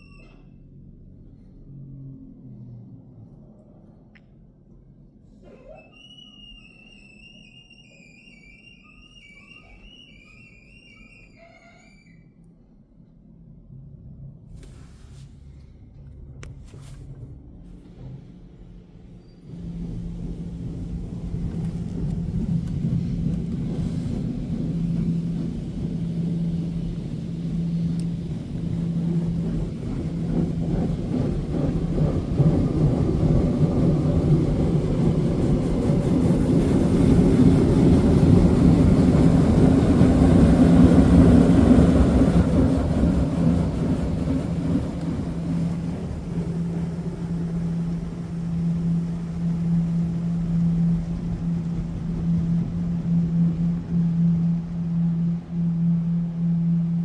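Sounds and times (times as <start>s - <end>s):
pulsing low hum: 0.0s - 5.8s, 12.4s - 57.0s
car wash machine rumbling: 13.8s - 57.0s.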